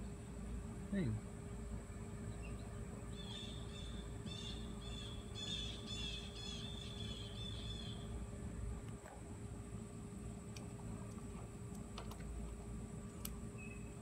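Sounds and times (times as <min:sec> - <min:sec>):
low background hum: 0:00.0 - 0:14.0
bird chirping: 0:02.0 - 0:08.1, 0:13.6 - 0:14.0.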